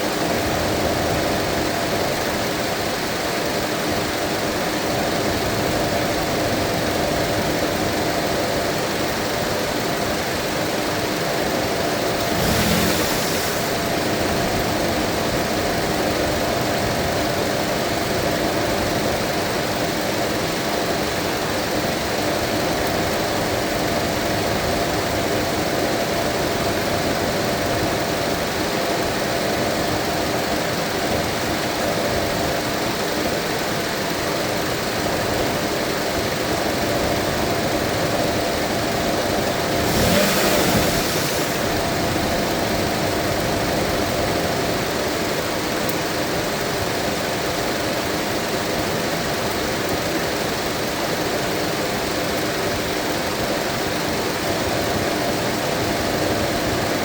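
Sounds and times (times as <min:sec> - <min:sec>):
car engine idling: 0:11.2 - 0:15.6, 0:39.2 - 0:44.9
brief rush of noise: 0:12.2 - 0:14.6, 0:40.2 - 0:42.2.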